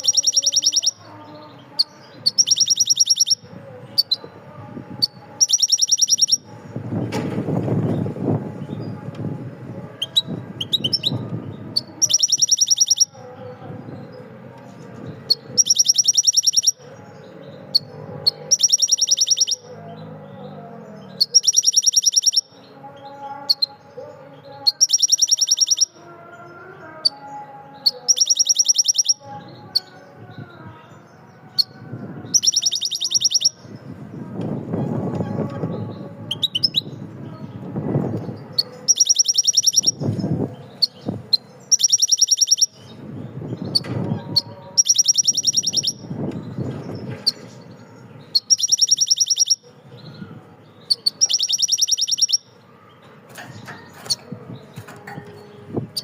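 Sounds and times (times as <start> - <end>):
bird high rapid trill: 0.0 - 1.2, 1.8 - 3.4, 5.0 - 6.5, 10.0 - 11.2, 11.8 - 13.2, 15.3 - 16.8, 17.7 - 19.7, 21.2 - 22.7, 24.7 - 26.0, 27.8 - 29.2, 31.6 - 33.7, 38.6 - 43.0, 43.6 - 46.3, 47.2 - 50.1, 50.8 - 52.6
faint voices or music: 0.0 - 56.0.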